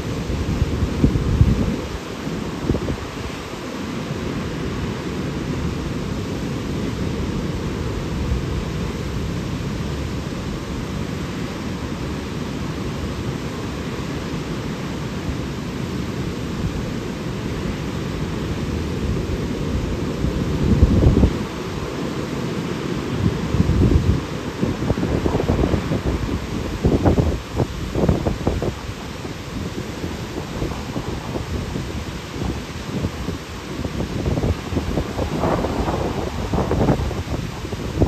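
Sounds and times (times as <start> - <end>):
wind buffeting microphone: 0.0 - 3.6, 18.5 - 21.7, 23.1 - 38.0
waterfall rushing: 0.0 - 38.0.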